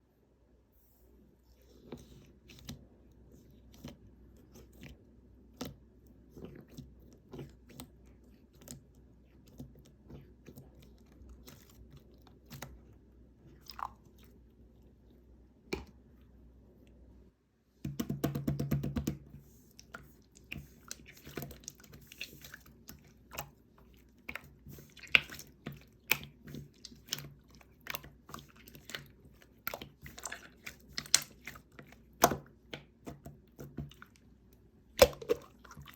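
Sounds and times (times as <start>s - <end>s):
slime squished by hand: 19.7s - 34.3s
sticky slime crackling: 19.8s - 34.2s.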